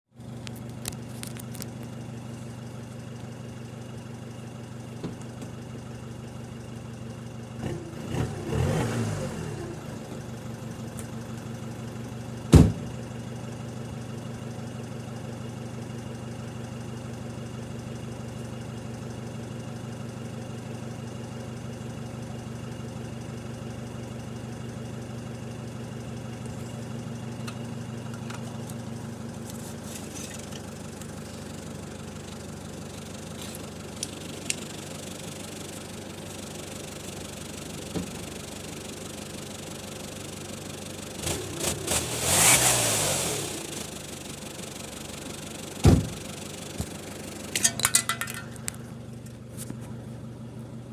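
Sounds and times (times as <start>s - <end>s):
car engine idling: 0.2s - 50.9s
sharp knock: 12.6s - 12.9s.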